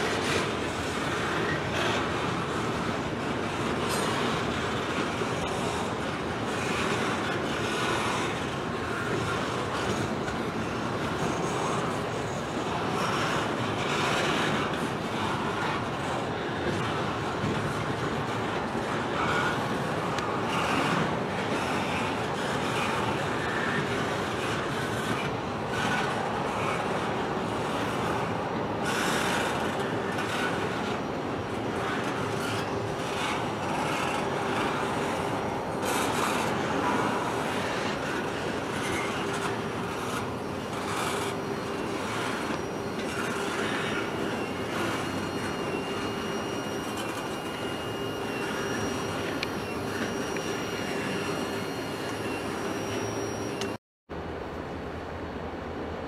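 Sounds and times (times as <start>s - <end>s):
train cars rumbling on rails: 0.0s - 53.7s
high wheel squeal: 31.8s - 53.8s.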